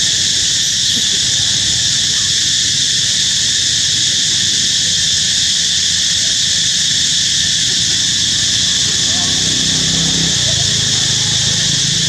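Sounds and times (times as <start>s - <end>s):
insect chorus: 0.0s - 12.0s
low background rumble: 7.3s - 12.0s.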